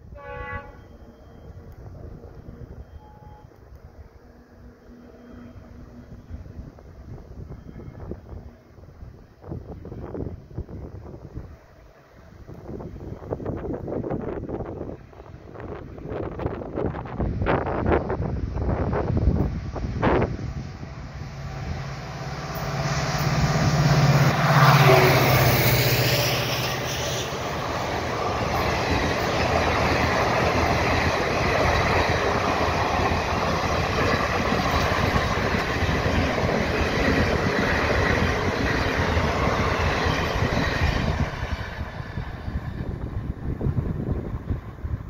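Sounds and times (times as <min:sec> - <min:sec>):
locomotive rumble: 0:00.0 - 0:45.0
train coaches rattling on rails: 0:00.0 - 0:45.0.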